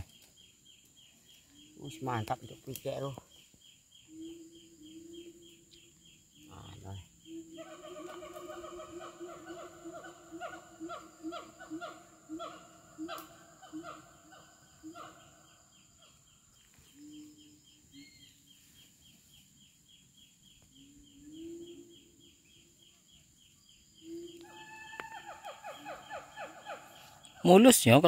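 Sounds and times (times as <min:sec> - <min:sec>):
thin high ticking bird calls: 0:00.0 - 0:08.8.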